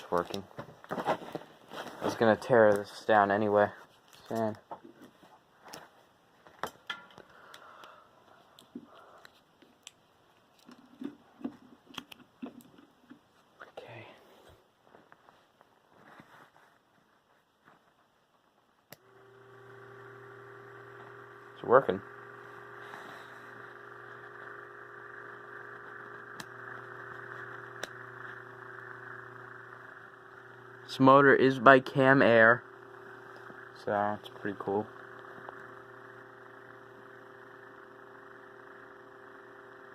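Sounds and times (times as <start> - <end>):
electric fan motor humming: 18.9 - 39.9.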